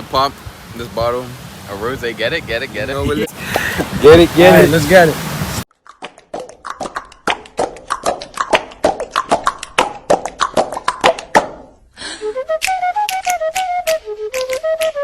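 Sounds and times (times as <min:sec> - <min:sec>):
body percussion slaps and clicks: 0:05.9 - 0:11.8, 0:12.5 - 0:15.0.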